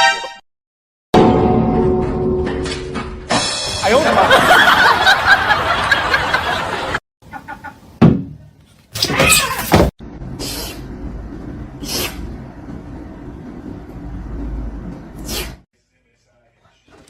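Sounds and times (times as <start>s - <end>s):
people talking: 3.8s - 4.6s
people laughing: 4.0s - 7.8s.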